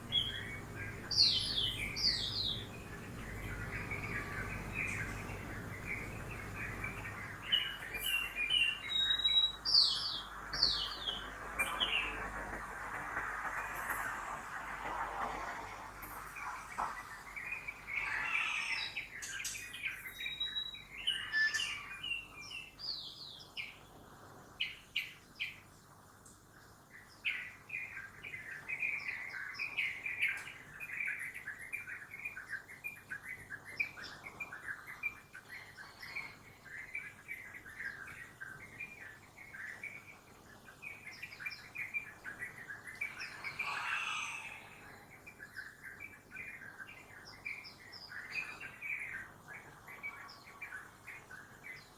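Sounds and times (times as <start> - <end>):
faint low city hum: 0.0 - 8.9
birds chirping and twittering: 0.0 - 25.9, 26.5 - 51.9.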